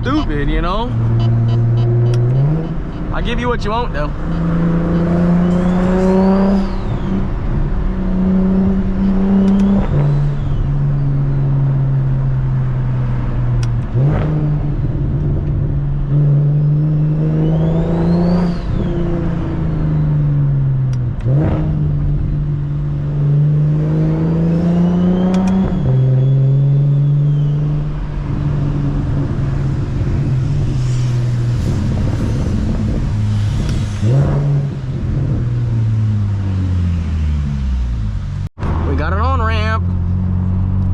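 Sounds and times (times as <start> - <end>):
turbo whine: 0.0 - 7.4
car engine accelerating: 0.0 - 40.9.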